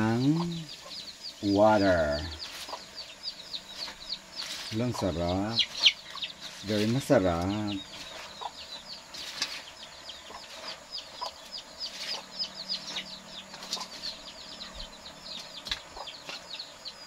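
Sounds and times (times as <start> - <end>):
birds peeping: 0.0 - 17.0
leaves rustling in a colander: 3.8 - 8.4, 9.1 - 9.8, 10.4 - 10.8, 11.9 - 14.2.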